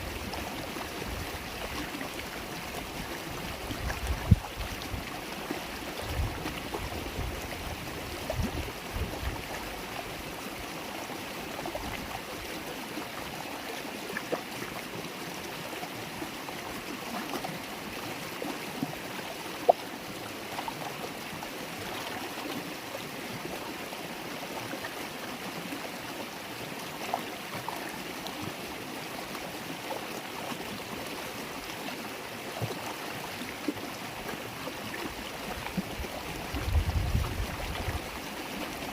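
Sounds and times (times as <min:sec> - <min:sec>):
river water flowing over rocks: 0:00.0 - 0:38.9
wind buffeting microphone: 0:03.7 - 0:05.0, 0:36.5 - 0:38.0.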